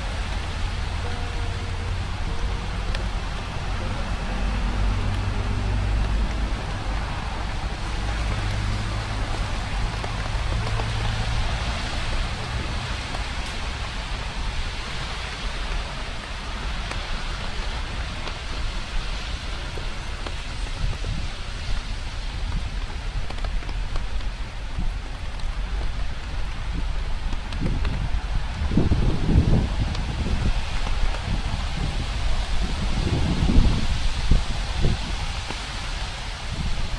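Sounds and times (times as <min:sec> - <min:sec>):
passing traffic engine hum: 0:00.0 - 0:22.3
steady rain falling: 0:00.0 - 0:36.9.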